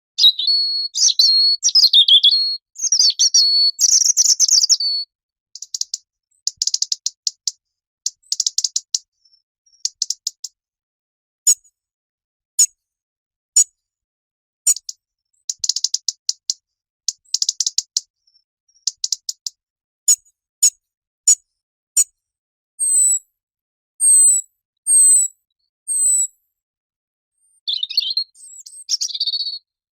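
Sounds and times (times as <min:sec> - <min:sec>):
robin ticking calls: 0:00.2 - 0:10.6, 0:14.7 - 0:19.6, 0:22.8 - 0:23.2, 0:25.9 - 0:26.3, 0:27.6 - 0:29.6.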